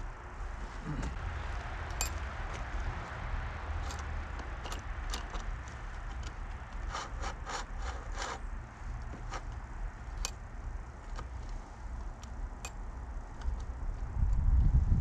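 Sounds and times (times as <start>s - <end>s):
road traffic rumble: 0.0s - 15.0s
scraping from hand work: 6.8s - 8.5s.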